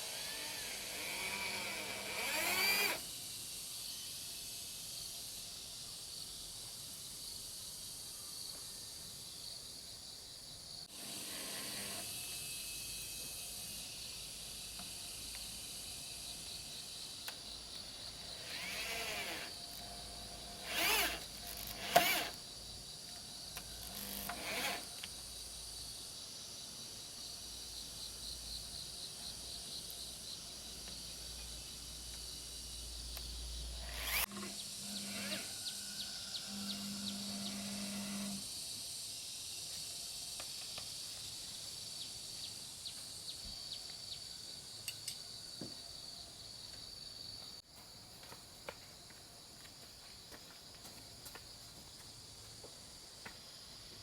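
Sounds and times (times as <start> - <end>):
woodworking tool noise: 0.0 - 3.1, 10.9 - 13.8, 18.1 - 22.4, 23.6 - 25.1, 33.8 - 35.8, 36.4 - 38.5
high insect drone: 0.0 - 54.0.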